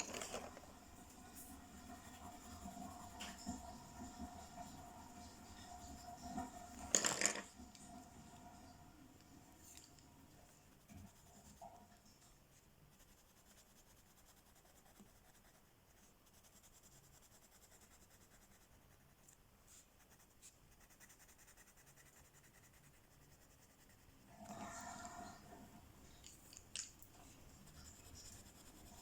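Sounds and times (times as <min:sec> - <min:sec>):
coloring tool scratching paper: 0:00.0 - 0:07.0, 0:10.4 - 0:11.8, 0:12.8 - 0:24.6, 0:27.3 - 0:29.0.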